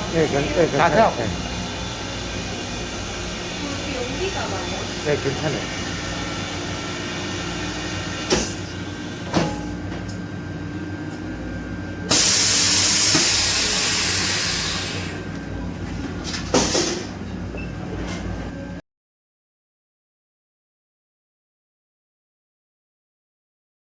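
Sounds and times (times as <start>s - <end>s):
air hissing from vented chamber: 0.0s - 18.6s
vacuum pump running: 0.0s - 18.8s.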